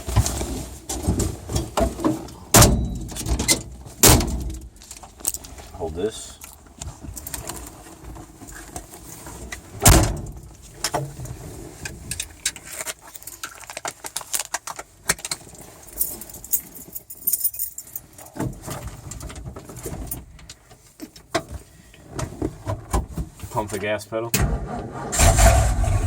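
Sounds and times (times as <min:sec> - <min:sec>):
keys jangling: 0:15.9 - 0:18.3.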